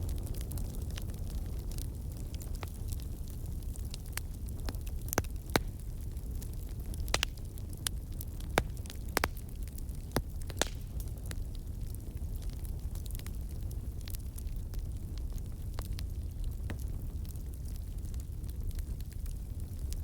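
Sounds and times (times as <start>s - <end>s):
fire flames rumbling: 0.0s - 20.0s
logs crackling and popping: 0.0s - 20.0s.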